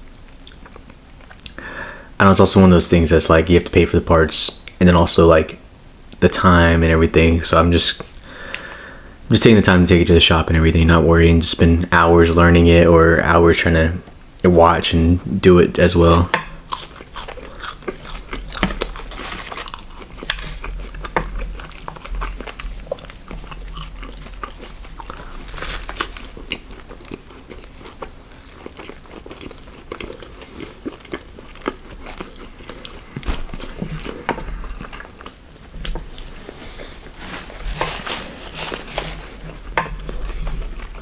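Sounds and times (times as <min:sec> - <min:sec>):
person chewing food: 0:16.0 - 0:41.0.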